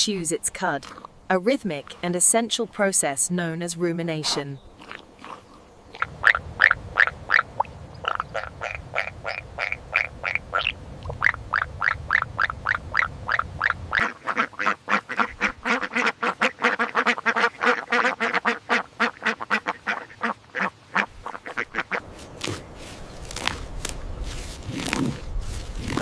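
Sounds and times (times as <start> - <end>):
ducks quacking: 4.2 - 22.6.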